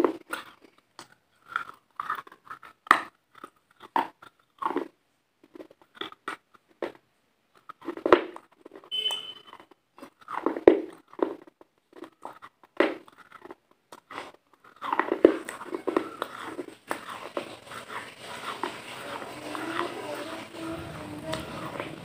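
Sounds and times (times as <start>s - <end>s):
chewing and crunching pizza: 0.0s - 22.0s
steady background noise: 14.6s - 22.0s.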